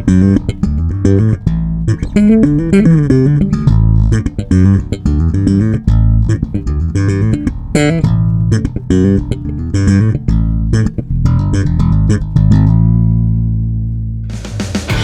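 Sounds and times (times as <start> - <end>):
plucked electric bass notes: 0.0 - 15.0.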